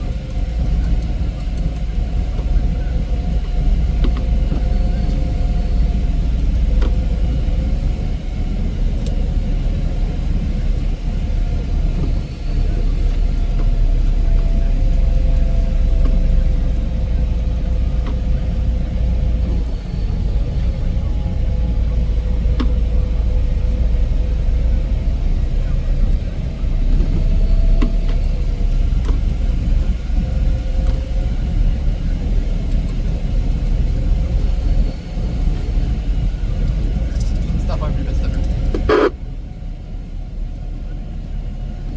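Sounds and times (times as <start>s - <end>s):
constant droning tone: 0.0s - 41.9s
snow removal machine engine rumble: 0.0s - 41.9s.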